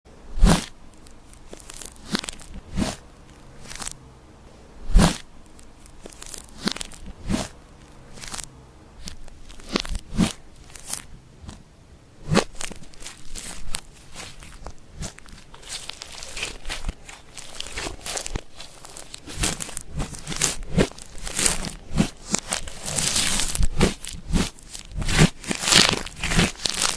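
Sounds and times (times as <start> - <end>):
sticky slime pops and crackles: 0.4 - 4.0.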